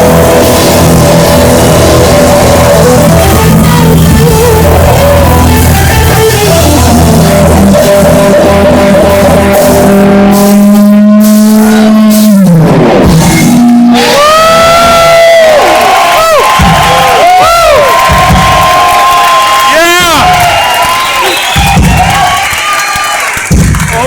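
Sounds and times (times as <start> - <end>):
live rock song with guitar: 0.0 - 14.2.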